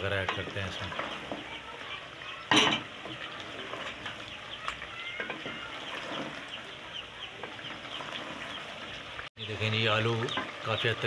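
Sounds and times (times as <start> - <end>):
food sizzling in a pot: 0.0 - 8.4
wooden spoon stirring: 0.0 - 9.2
chicks peeping: 4.1 - 11.0.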